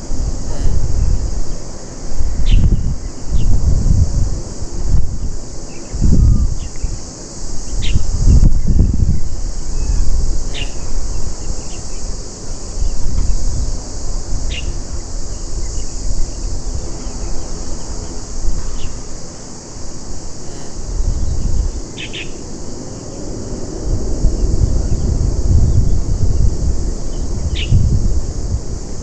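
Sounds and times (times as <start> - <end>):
high-pitched insect chorus: 0.0 - 29.0
wind buffeting microphone: 0.0 - 29.0
bird chirps: 9.8 - 11.9.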